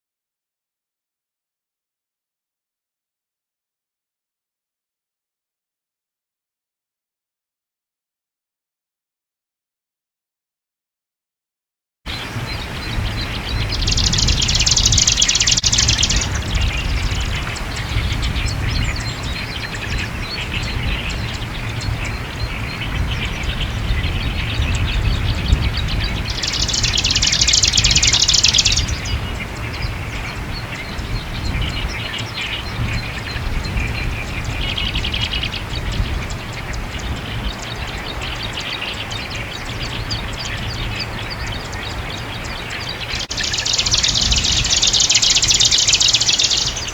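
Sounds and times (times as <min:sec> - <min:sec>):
faint bird chatter: 0:12.1 - 0:46.9
warbler singing: 0:12.1 - 0:46.9
wind rumbling on microphone: 0:12.1 - 0:46.9.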